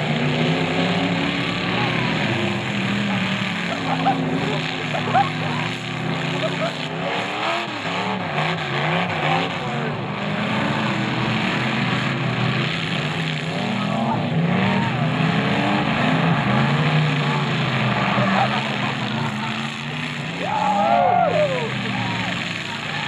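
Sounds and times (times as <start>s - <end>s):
car engines revving hard: 0.0s - 23.0s.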